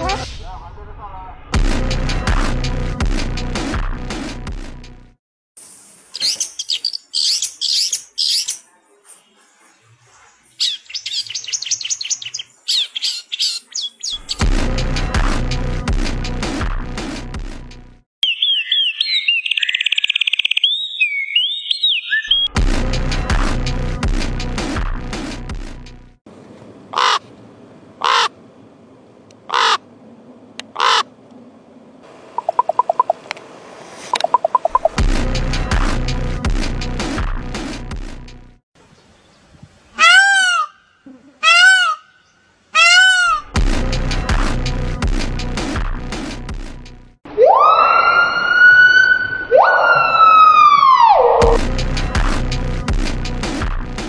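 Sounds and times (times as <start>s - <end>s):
music: 0.0s - 5.2s, 14.2s - 18.0s, 22.5s - 26.2s, 34.9s - 38.6s, 43.6s - 47.2s, 51.5s - 54.0s
bird harsh raspy calls: 6.2s - 8.7s, 10.4s - 14.4s, 18.2s - 22.5s, 26.9s - 27.3s, 28.0s - 28.4s, 29.5s - 29.8s, 30.7s - 31.1s, 40.0s - 43.6s.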